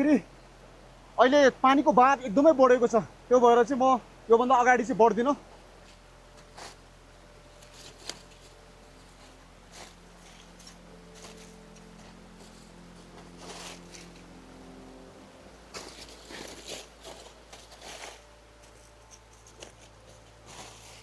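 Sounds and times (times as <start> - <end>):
faint steady hum: 0.0 - 21.0
rustling and scraping: 5.0 - 21.0.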